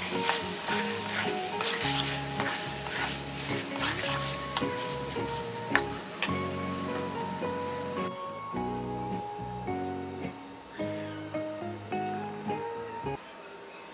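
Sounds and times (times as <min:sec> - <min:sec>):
metal spatula scraping a pan: 0:00.0 - 0:07.1
curry sizzling in a pan: 0:00.0 - 0:08.1
background music: 0:00.0 - 0:13.2.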